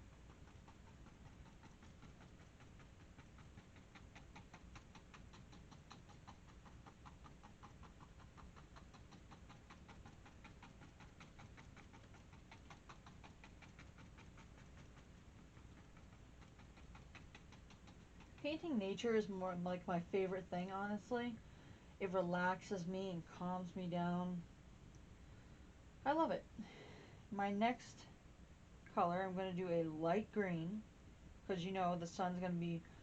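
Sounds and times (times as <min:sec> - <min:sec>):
paintbrush dabbing on canvas: 0:00.0 - 0:19.2.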